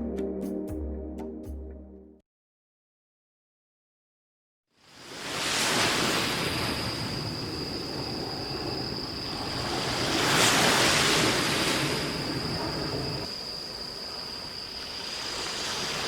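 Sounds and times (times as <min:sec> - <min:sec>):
waves washing onto beach: 0:05.0 - 0:08.0, 0:09.3 - 0:13.3, 0:14.4 - 0:16.0.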